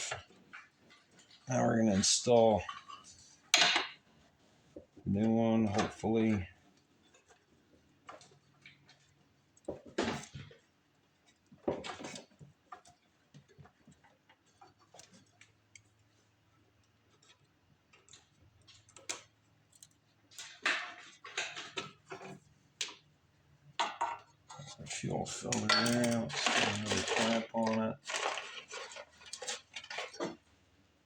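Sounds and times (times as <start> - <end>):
hands handling fuel line parts: 23.8 - 30.6.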